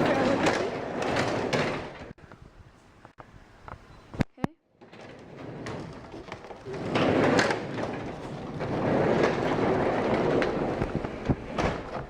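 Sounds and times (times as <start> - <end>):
garage door rollers rumbling: 4.8 - 12.0.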